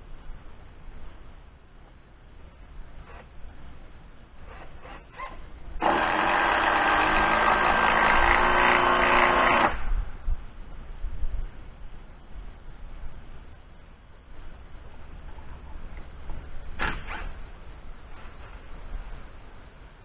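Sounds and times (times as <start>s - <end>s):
power drill driving screw: 4.5s - 9.8s.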